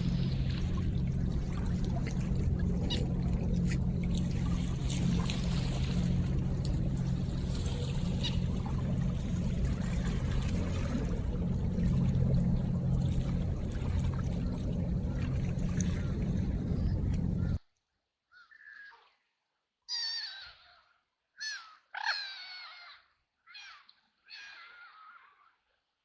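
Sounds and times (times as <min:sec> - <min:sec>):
river water splashing and trickling: 0:00.0 - 0:17.6
small drips and splashes: 0:00.0 - 0:17.6
steady low rumble: 0:00.0 - 0:17.6.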